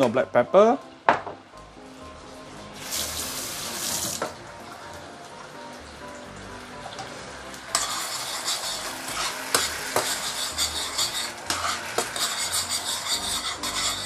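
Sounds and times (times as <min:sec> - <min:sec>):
sauce sizzling in a pan: 0:02.7 - 0:14.0
utensil knocking and scraping pan: 0:07.7 - 0:14.0.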